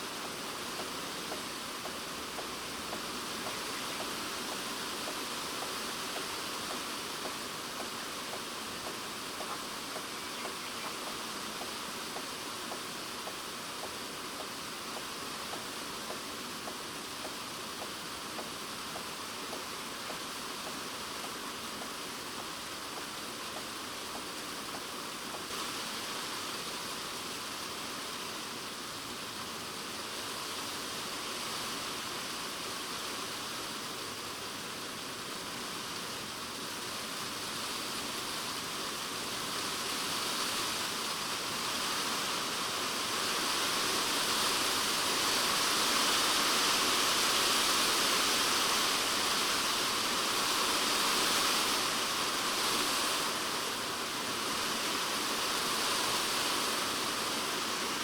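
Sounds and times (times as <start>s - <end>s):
rain drumming on plastic roof: 0.0s - 27.5s, 39.4s - 58.0s.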